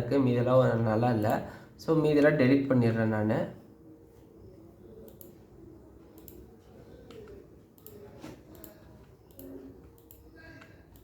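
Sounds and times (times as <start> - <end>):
computer mouse and keyboard clicks: 5.0 - 5.4, 6.1 - 11.0.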